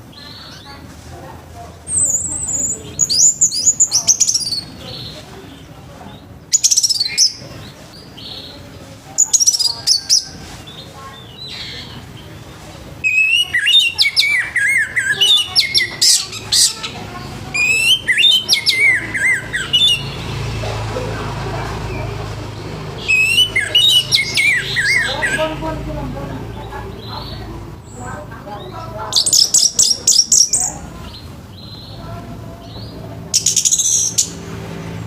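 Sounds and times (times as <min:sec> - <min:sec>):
thrush singing whistled phrases: 0:06.5 - 0:07.4, 0:13.0 - 0:20.5, 0:23.0 - 0:25.7, 0:29.1 - 0:30.9, 0:33.4 - 0:34.4.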